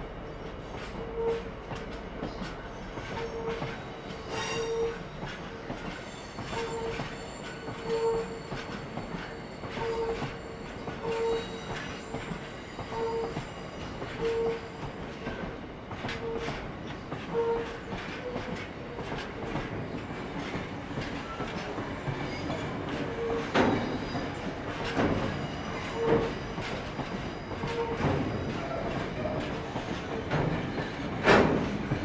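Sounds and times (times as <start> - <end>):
train wheels rumbling: 0.0 - 32.0
wheel squeals: 2.2 - 15.5, 21.1 - 31.7.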